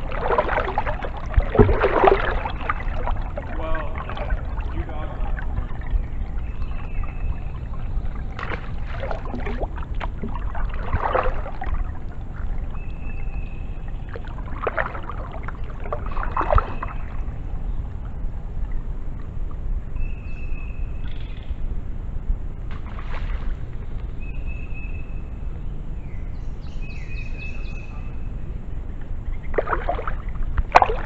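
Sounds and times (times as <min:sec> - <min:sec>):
paddle splashing in water: 0:00.0 - 0:17.4, 0:22.7 - 0:23.8, 0:29.4 - 0:31.0
low rumble: 0:00.0 - 0:31.0.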